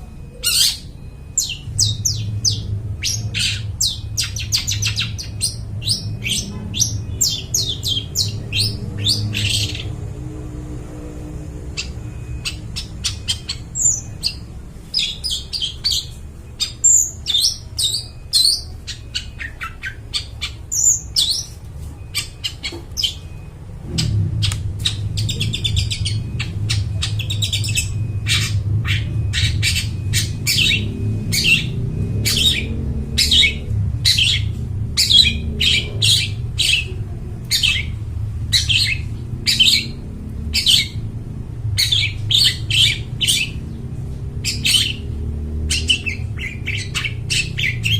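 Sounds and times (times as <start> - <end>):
steady low hum: 0.0 - 47.9
bird singing chirps and squawks: 0.3 - 47.9.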